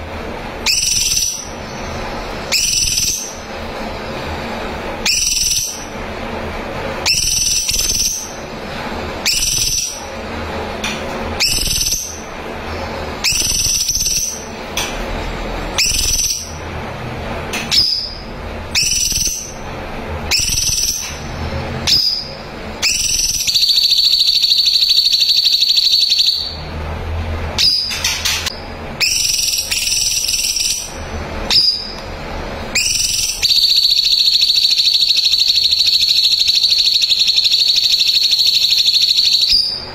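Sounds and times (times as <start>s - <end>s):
songbird whistled notes: 0.6s - 3.4s, 5.0s - 5.9s, 7.0s - 8.4s, 9.2s - 10.0s, 11.4s - 12.3s, 13.2s - 14.5s, 15.8s - 16.6s, 17.7s - 19.6s, 20.3s - 21.2s, 21.8s - 26.6s, 27.6s - 28.4s, 29.0s - 32.0s, 32.8s - 39.9s
bird rapid trill: 0.6s - 3.5s, 5.0s - 6.0s, 7.0s - 8.6s, 9.2s - 10.2s, 11.4s - 14.6s, 15.8s - 16.6s, 17.6s - 19.7s, 20.3s - 21.2s, 21.8s - 26.6s, 27.6s - 32.0s, 32.7s - 39.9s.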